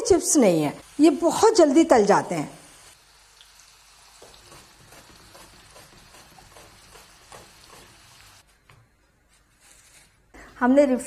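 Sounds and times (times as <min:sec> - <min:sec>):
chips sizzling faintly in hot oil: 0:00.4 - 0:08.5.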